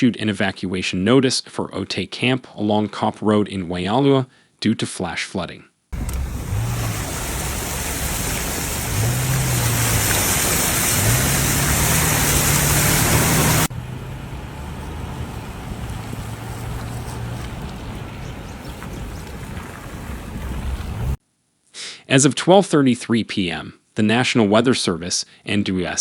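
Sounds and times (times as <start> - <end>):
rushing water: 6.0 - 21.2
vehicle engine running: 6.0 - 21.2.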